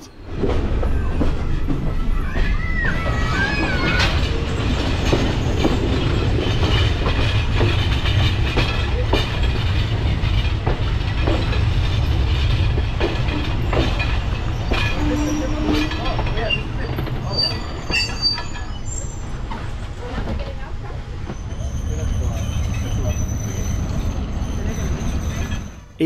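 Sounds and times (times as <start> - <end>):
train wheels rumbling: 0.0 - 26.0
clanks and knocks at rail joints: 0.3 - 18.8.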